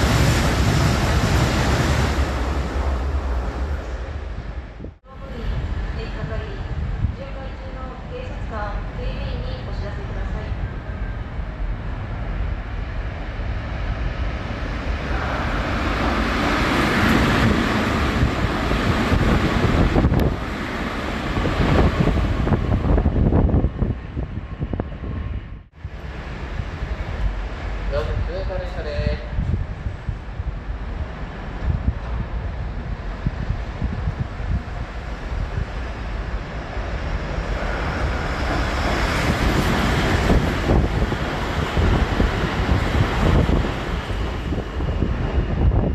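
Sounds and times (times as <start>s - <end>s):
wheels rushing on rail: 0.0s - 45.9s
wind buffeting microphone: 0.0s - 45.9s.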